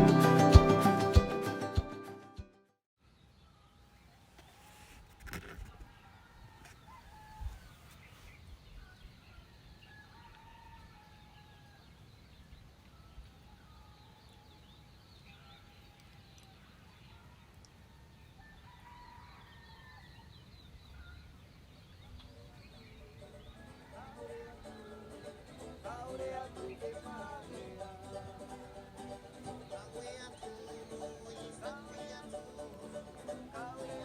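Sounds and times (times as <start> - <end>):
bird calls and chirps: 5.8 - 27.1.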